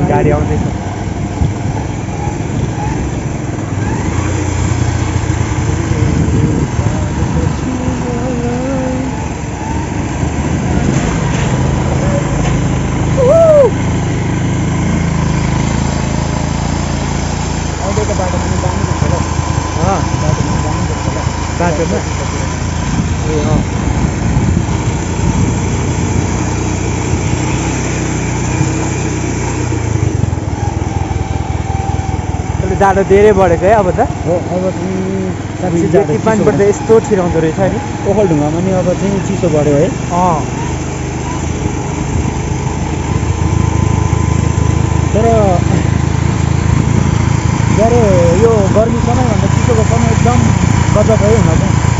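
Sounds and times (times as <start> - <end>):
noisy rush: 0.0 - 51.9
vehicle engine approaching: 0.0 - 51.9.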